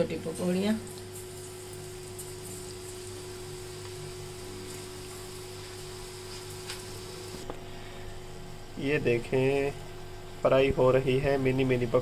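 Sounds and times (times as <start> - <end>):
batter sizzling in hot oil: 0.5 - 7.5.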